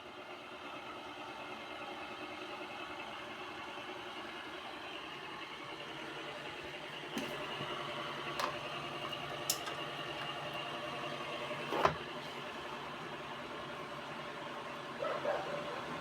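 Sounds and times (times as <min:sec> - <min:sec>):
electric fans humming: 0:07.0 - 0:16.0.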